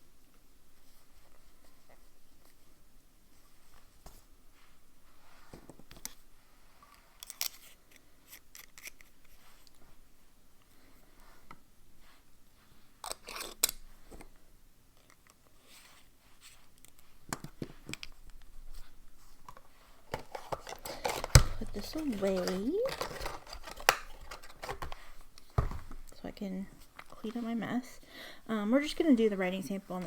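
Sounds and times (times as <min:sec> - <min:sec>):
things handled on a desk: 0:15.0 - 0:26.2.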